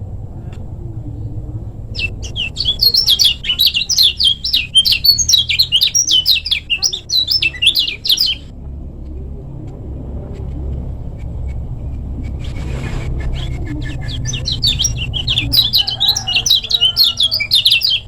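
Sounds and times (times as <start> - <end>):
steady low rumble: 0.0 - 18.0
bird chirping high notes: 2.0 - 8.5, 13.3 - 18.0.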